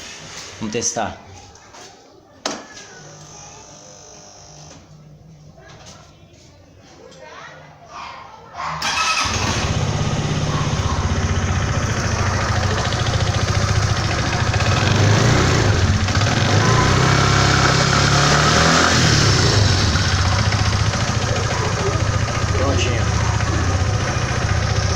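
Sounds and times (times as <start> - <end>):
scooter engine idling: 8.8 - 24.9.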